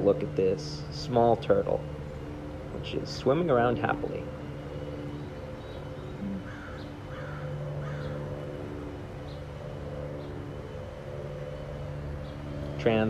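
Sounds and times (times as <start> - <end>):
steady low hum: 0.0 - 13.0
bird calls: 0.8 - 10.8.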